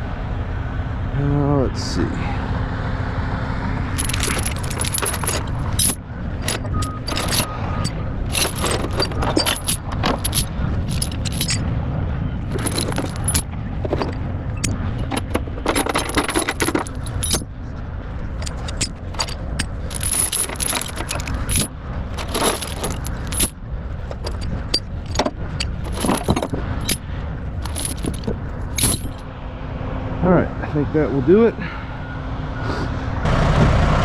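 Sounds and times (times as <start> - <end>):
steel chains clinking: 3.9 - 11.7, 12.4 - 17.5, 18.2 - 29.3.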